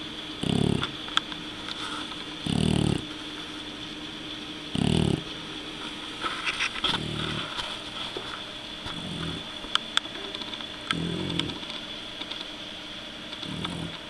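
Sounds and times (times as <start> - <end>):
puppy snoring: 0.0 - 1.0, 1.7 - 3.2, 4.7 - 5.4, 6.4 - 9.6, 10.2 - 11.8, 13.3 - 14.0.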